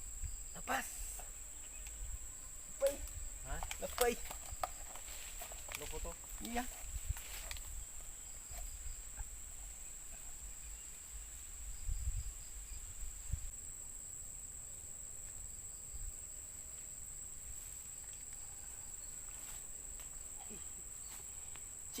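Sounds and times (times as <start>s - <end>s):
faint chirping: 0.0s - 4.2s, 7.3s - 13.5s
crickets chirping: 0.0s - 22.0s.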